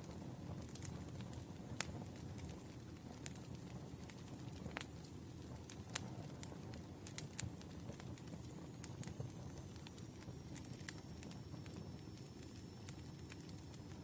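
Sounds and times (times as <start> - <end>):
wood fire crackling and popping: 0.0 - 14.0
faint high whistle: 8.5 - 14.0.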